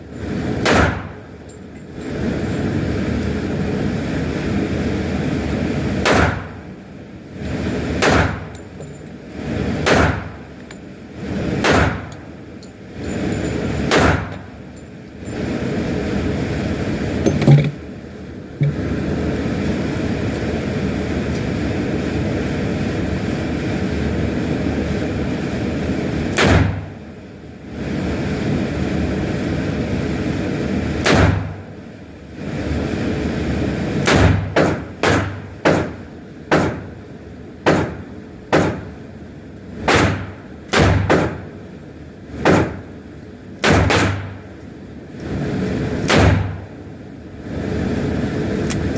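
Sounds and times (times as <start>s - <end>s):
steady rushing noise: 0.0s - 48.9s
handgun shots: 0.6s - 1.1s, 6.0s - 6.5s, 8.0s - 8.4s, 9.9s - 10.3s, 11.6s - 12.1s, 13.9s - 14.4s, 26.4s - 26.8s, 31.0s - 31.4s, 34.0s - 35.9s, 36.5s - 36.8s, 37.6s - 38.8s, 39.9s - 41.4s, 43.6s - 44.3s, 46.0s - 46.5s.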